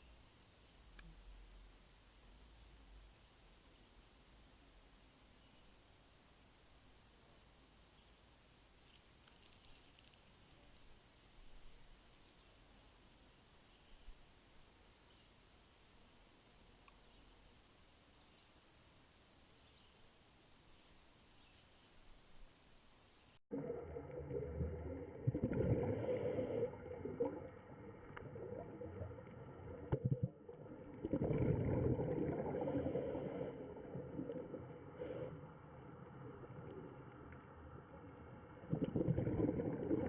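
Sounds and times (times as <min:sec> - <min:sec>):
faint hiss: 0:00.0 - 0:23.4, 0:32.4 - 0:38.6
insects chirping: 0:00.0 - 0:23.4.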